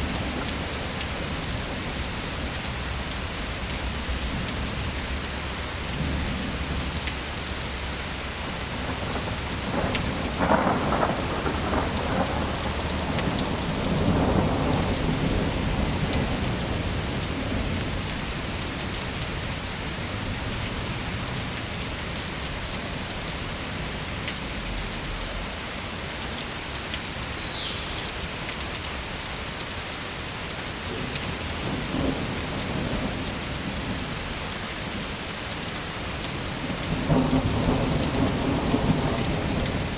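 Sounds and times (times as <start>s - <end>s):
rain hiss: 0.0s - 39.9s
thunder rumbling: 8.4s - 19.0s, 30.9s - 35.1s, 36.4s - 39.9s.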